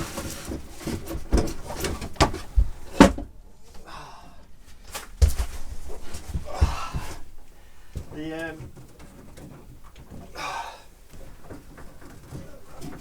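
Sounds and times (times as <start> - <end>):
knocks and clunks of fittings: 0.0 - 3.4.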